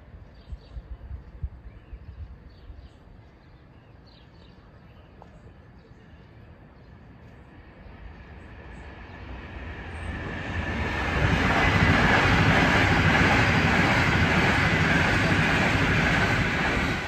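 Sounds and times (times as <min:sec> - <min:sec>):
high-speed train passing: 0:06.2 - 0:17.0.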